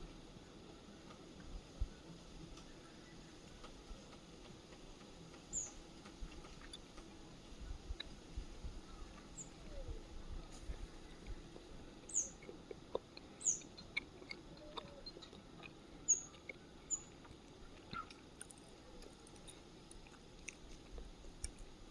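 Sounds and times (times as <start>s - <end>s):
high bird chirps: 12.1s - 12.5s, 13.4s - 13.9s, 16.1s - 17.2s.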